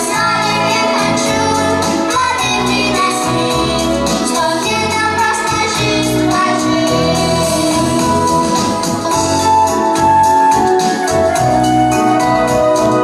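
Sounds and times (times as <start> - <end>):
voices singing worship song: 0.0 - 9.6
instrumental accompaniment: 0.0 - 13.0.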